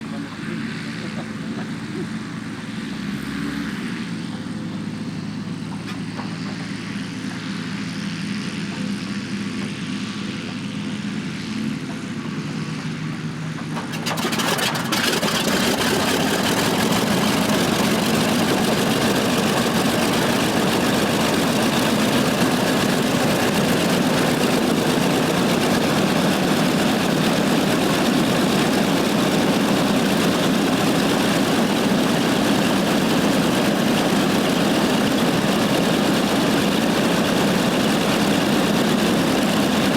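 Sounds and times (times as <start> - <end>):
radial engine starting and idling: 13.8 - 39.9.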